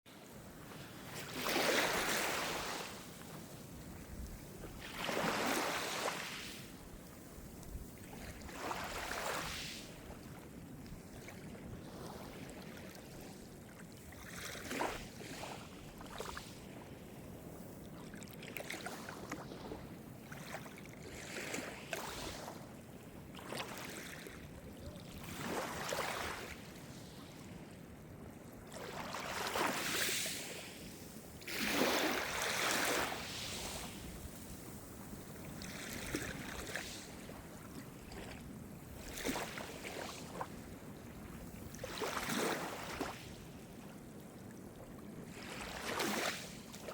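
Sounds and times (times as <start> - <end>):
small waves breaking: 0.1 - 46.9
steady surf wash: 0.5 - 10.0, 29.5 - 37.4.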